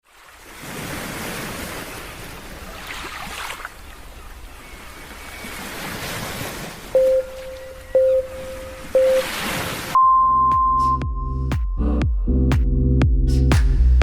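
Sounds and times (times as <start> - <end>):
ocean surf: 0.0 - 10.0.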